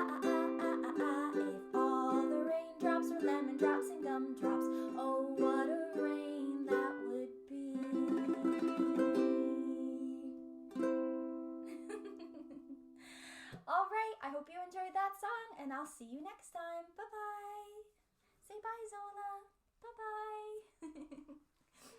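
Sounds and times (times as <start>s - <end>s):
strummed strings: 0.0s - 7.2s, 7.8s - 11.8s
woman singing: 0.0s - 10.5s, 13.6s - 17.8s.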